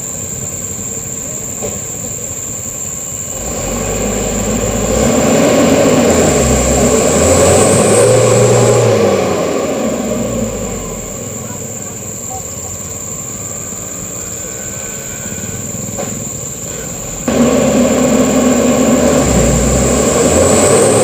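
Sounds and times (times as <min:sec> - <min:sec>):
diesel truck engine under load: 0:00.0 - 0:21.0.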